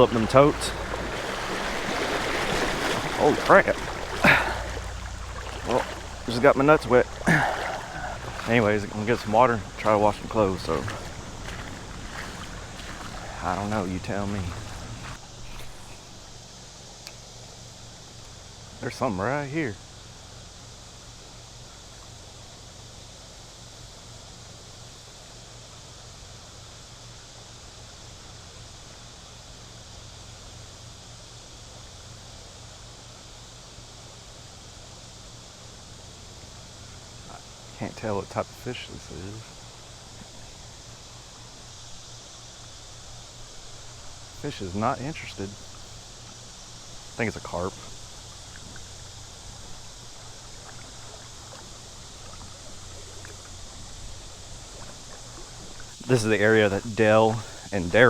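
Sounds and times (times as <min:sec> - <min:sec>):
low hum: 0:00.0 - 0:16.4
even hiss: 0:00.0 - 0:58.0
river water running and lapping: 0:00.0 - 0:58.0.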